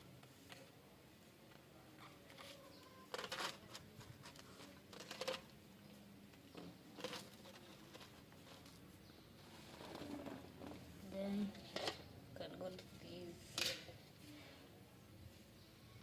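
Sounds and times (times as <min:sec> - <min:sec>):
plastic parts rustling and knocking: 0:02.3 - 0:05.6, 0:06.4 - 0:08.8.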